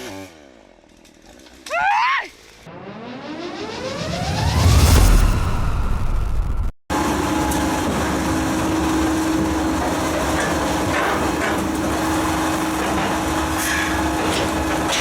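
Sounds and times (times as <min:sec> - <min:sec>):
machine hum: 0:02.7 - 0:10.3.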